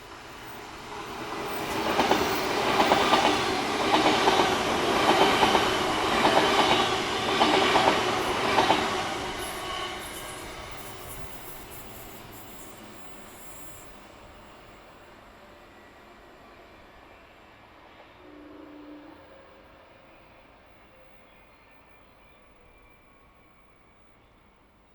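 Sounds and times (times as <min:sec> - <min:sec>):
train rumbling past: 0:00.0 - 0:24.9
train wheels clacking on rail joints: 0:01.6 - 0:11.4.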